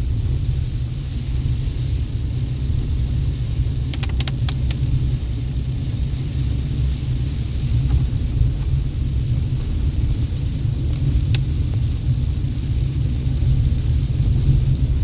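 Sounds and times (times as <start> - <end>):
truck engine and road noise: 0.0 - 15.0
quick clicks: 3.9 - 4.9.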